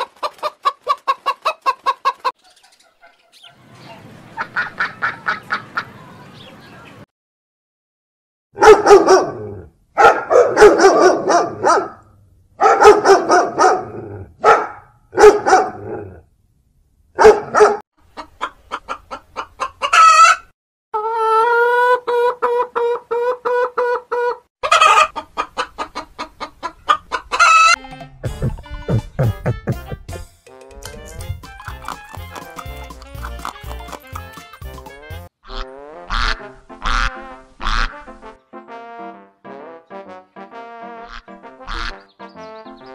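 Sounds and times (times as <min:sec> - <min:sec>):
chickens clucking: 0:00.0 - 0:07.0, 0:18.0 - 0:29.4, 0:31.0 - 0:38.1, 0:41.1 - 0:42.8
dog barking and howling: 0:08.6 - 0:12.0, 0:12.6 - 0:16.2, 0:17.2 - 0:17.8.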